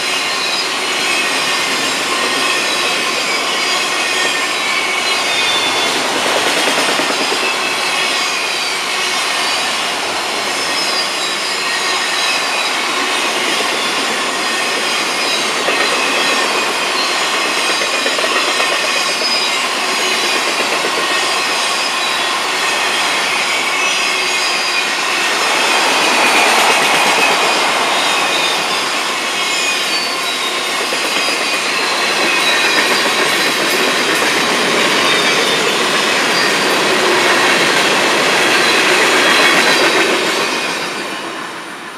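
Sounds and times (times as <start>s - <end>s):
freight train wheels clattering: 0.0s - 41.3s
high wheel squeal: 0.0s - 41.4s.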